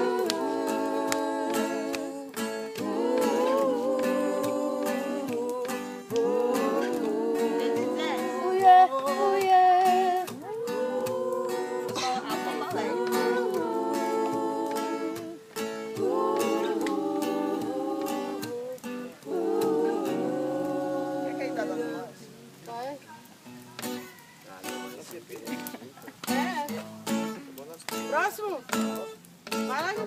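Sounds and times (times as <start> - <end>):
strummed acoustic guitar: 0.0 - 22.4, 23.4 - 30.0
people singing worship song: 0.0 - 22.6.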